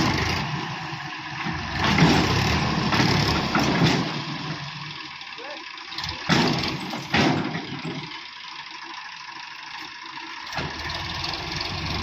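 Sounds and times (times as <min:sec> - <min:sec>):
diesel engine of heavy machinery: 0:00.0 - 0:12.0
loud thump: 0:06.3 - 0:07.8.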